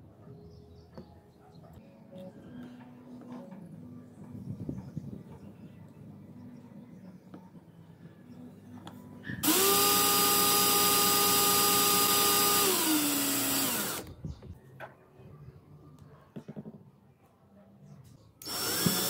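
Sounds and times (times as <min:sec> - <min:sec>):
electric motor whining: 0:09.4 - 0:14.1, 0:18.4 - 0:19.0.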